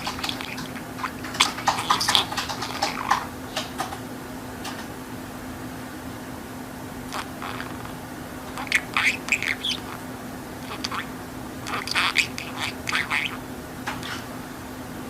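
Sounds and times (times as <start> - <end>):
budgerigar chirping and squawking: 0.0 - 3.3, 7.1 - 13.4, 14.0 - 14.3.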